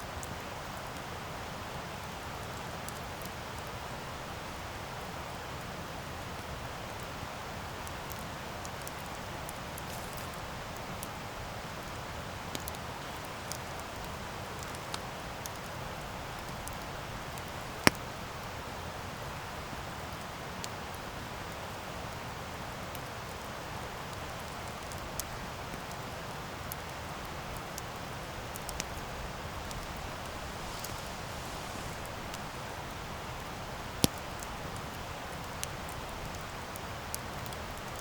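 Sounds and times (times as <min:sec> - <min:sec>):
campfire hissing and crackling: 0:00.0 - 0:38.0
loud sharp pop of fire: 0:28.8 - 0:33.2.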